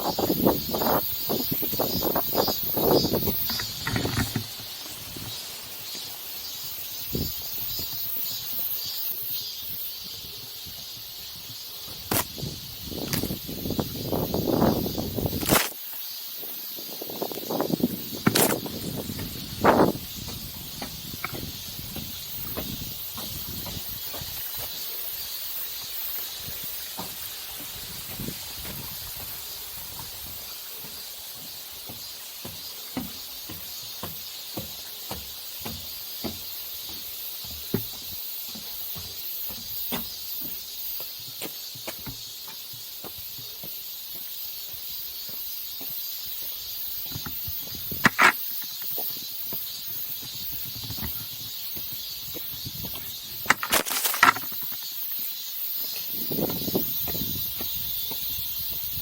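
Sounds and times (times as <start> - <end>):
strong wind buffeting microphone: 0.0 - 5.3, 12.0 - 15.5, 16.9 - 24.4, 27.8 - 30.2, 56.2 - 59.0.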